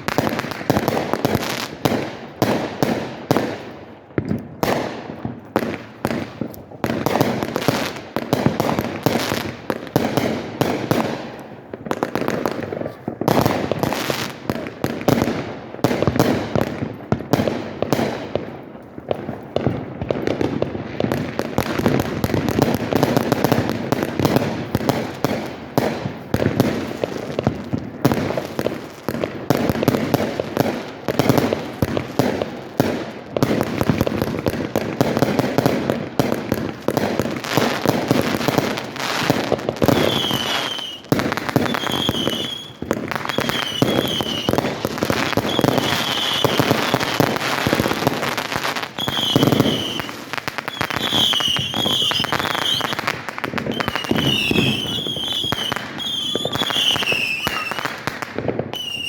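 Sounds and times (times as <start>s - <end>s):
fireworks bangs and crackling: 0.0s - 59.0s
high firework whistles: 37.4s - 59.0s.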